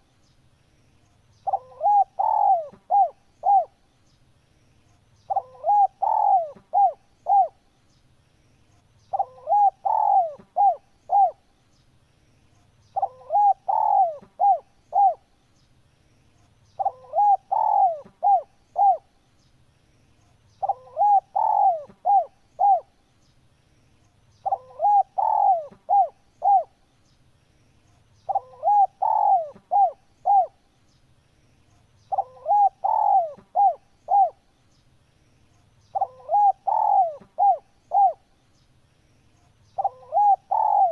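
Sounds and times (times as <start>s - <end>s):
dove cooing: 1.4s - 3.8s, 5.3s - 7.6s, 9.1s - 11.4s, 13.0s - 15.3s, 16.8s - 19.1s, 20.6s - 22.9s, 24.4s - 26.8s, 28.3s - 30.6s, 32.1s - 34.4s, 35.9s - 38.2s, 39.8s - 40.9s.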